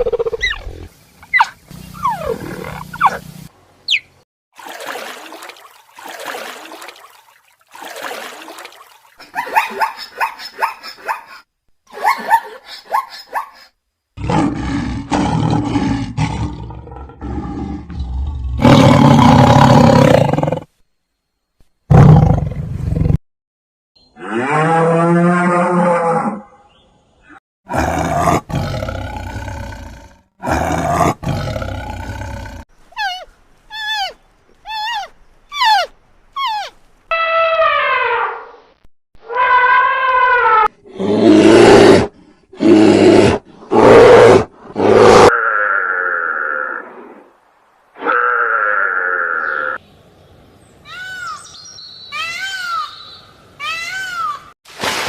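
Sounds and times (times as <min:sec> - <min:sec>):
animal high yelping calls: 0:00.0 - 0:03.2, 0:03.9 - 0:04.1, 0:33.0 - 0:38.4
large animal roaring: 0:14.2 - 0:20.7, 0:27.7 - 0:32.6, 0:40.8 - 0:47.1.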